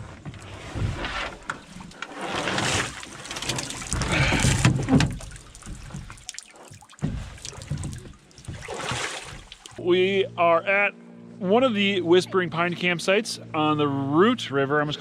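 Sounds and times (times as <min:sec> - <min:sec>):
water splashing and sloshing: 0:00.0 - 0:09.8
knocks on canoe: 0:07.0 - 0:09.6.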